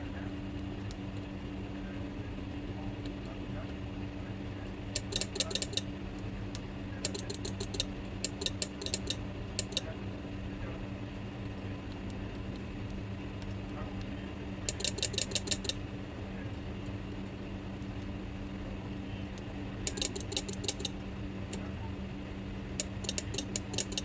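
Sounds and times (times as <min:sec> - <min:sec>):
steady low hum: 0:00.0 - 0:24.0
relay clicking in rattling bursts: 0:05.0 - 0:05.8, 0:07.0 - 0:09.8, 0:14.7 - 0:15.8, 0:19.9 - 0:21.6, 0:22.8 - 0:24.0.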